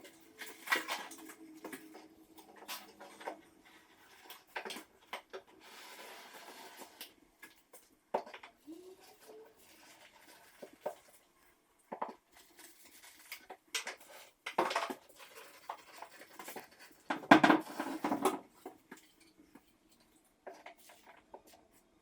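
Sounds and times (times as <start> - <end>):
tools knocking and tapping: 17.1 - 19.1.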